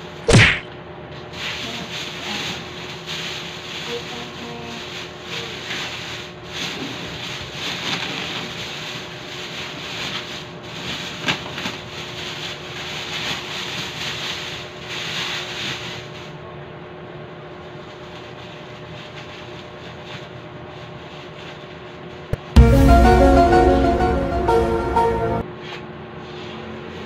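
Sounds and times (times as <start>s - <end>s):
plastic bag rustling: 1.7s - 14.6s.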